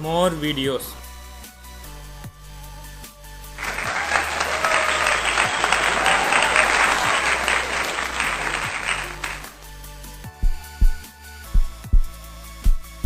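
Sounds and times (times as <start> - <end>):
faint background music: 0.0 - 5.6
applause: 3.6 - 9.7.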